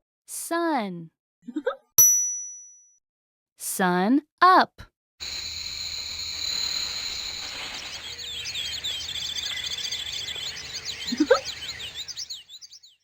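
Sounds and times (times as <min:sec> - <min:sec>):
steady high hiss and tone: 0:05.2 - 0:08.4
rising whistle-like glide: 0:05.2 - 0:09.1
birds chirping and trilling: 0:05.3 - 0:13.0.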